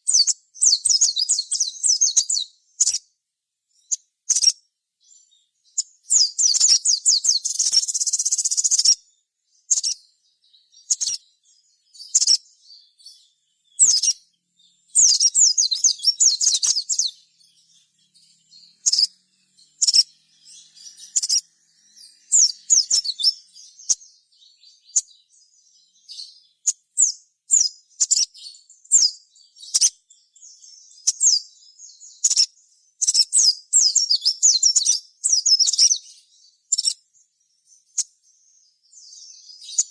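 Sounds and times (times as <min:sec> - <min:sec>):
sunbird singing: 0:00.0 - 0:39.9.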